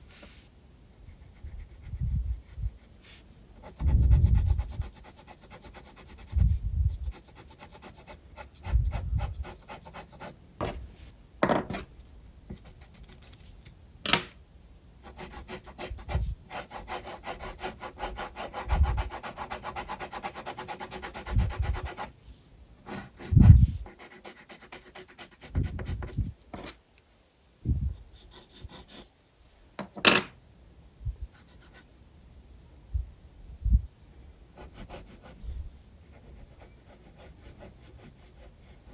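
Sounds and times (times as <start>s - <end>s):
pencil scratching on paper: 0.1s - 11.9s, 12.5s - 13.5s, 15.0s - 22.1s, 22.8s - 26.8s, 28.2s - 29.1s, 34.6s - 38.9s.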